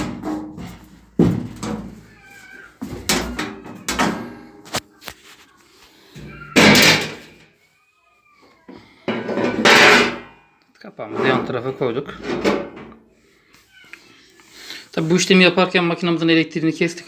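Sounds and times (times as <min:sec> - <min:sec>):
panel knocking and scraping: 0:00.0 - 0:02.0, 0:09.1 - 0:10.3, 0:12.2 - 0:13.0.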